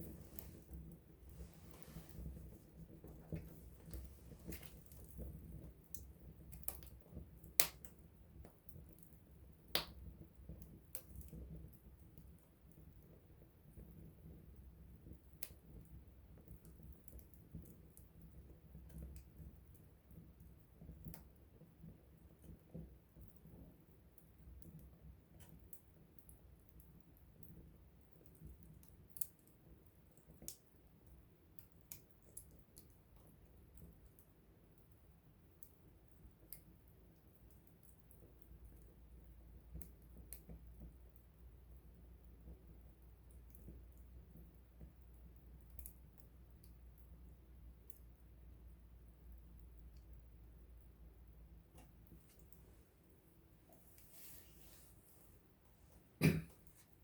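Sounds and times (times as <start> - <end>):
campfire crackling: 0.0 - 11.3
campfire crackling and popping: 0.0 - 12.2, 24.1 - 34.8.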